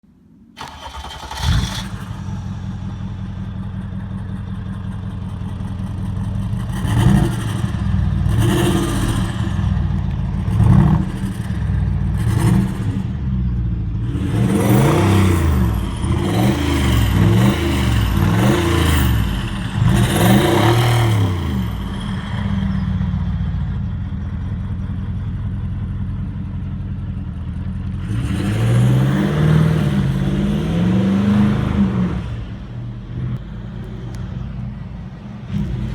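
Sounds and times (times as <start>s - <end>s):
car engine idling and revving: 0.6s - 35.9s.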